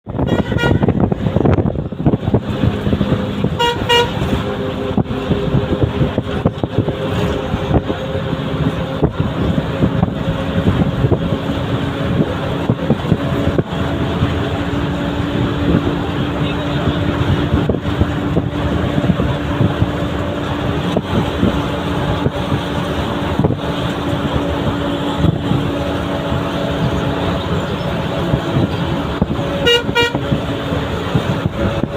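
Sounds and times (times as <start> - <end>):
bus engine running: 0.0 - 31.9
vehicle horn toots: 0.1 - 1.1, 3.4 - 4.5, 29.6 - 30.4.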